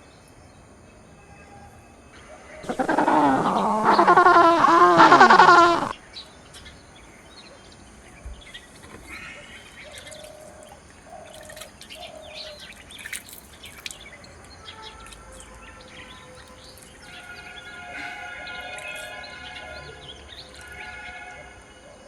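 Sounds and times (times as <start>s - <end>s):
birds chirping: 2.2s - 22.0s
short low bird calls: 2.4s - 6.0s.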